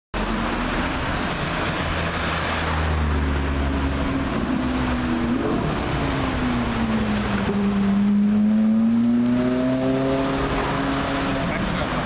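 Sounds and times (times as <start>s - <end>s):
car engine at low revs: 0.2s - 12.0s.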